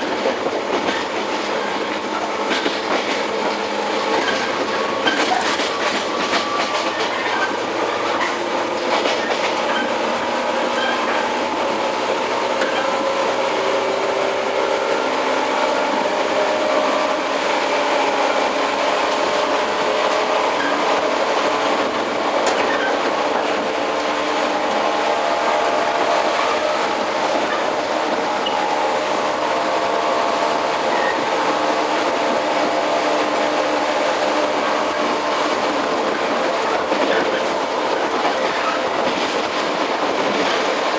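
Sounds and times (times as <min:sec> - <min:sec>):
train wheels rumbling: 0:00.0 - 0:40.9
train motor whine: 0:12.5 - 0:38.9.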